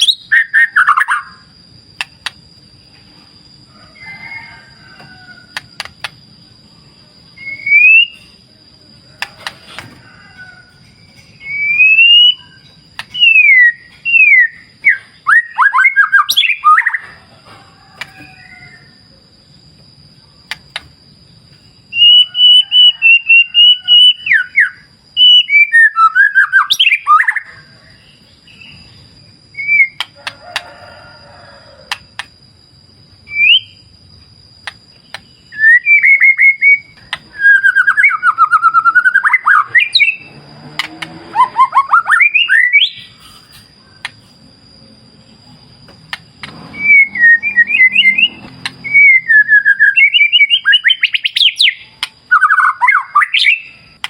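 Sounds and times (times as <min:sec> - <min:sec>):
bird singing whistled notes: 0:00.0 - 0:01.5, 0:07.2 - 0:08.4, 0:11.0 - 0:17.1, 0:21.8 - 0:30.1, 0:33.2 - 0:33.9, 0:35.0 - 0:40.3, 0:41.3 - 0:43.2, 0:46.7 - 0:54.0.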